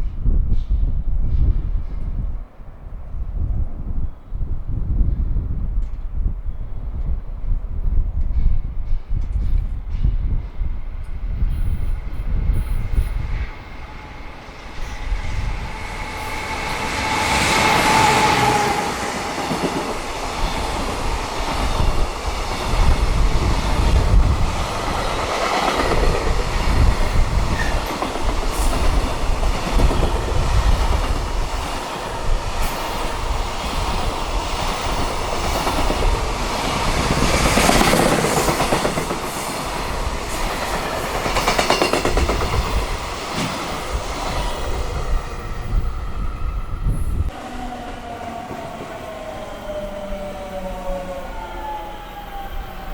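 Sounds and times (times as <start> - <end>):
train rumble: 0.0 - 52.9
train wheels clattering over rail joints: 15.7 - 44.4.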